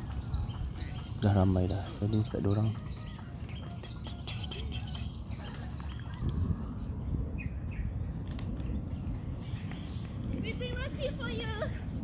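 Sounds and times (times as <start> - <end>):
short high bird chirp: 0.3 - 6.2
steady low rumble: 4.0 - 12.0.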